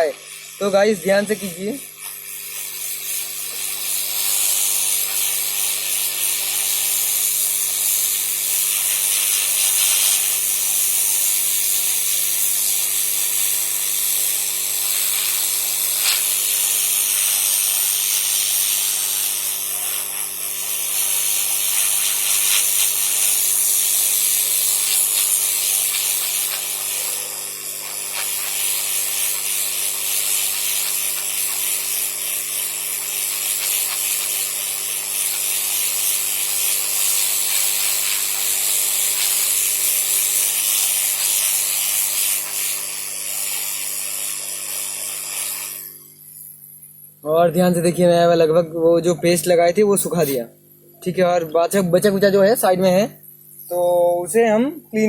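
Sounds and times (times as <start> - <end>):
hiss of rushing air: 7.9 - 10.4, 14.0 - 32.0, 36.4 - 42.8.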